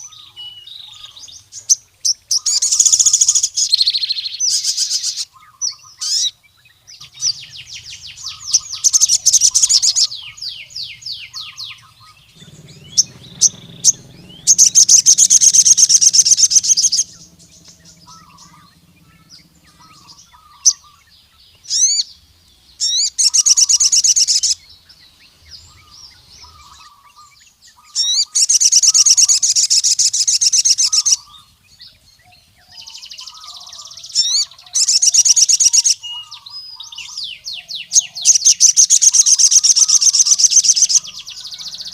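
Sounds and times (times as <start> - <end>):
sunbird singing high notes: 0.0 - 32.0
soft bird chirps: 0.0 - 41.9.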